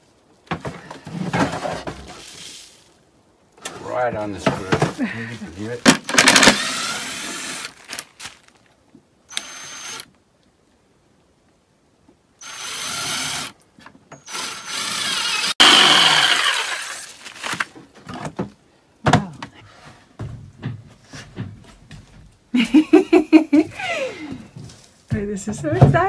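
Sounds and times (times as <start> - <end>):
power drill driving a screw: 6.0 - 7.8, 9.3 - 10.1, 12.4 - 13.6, 14.2 - 17.1.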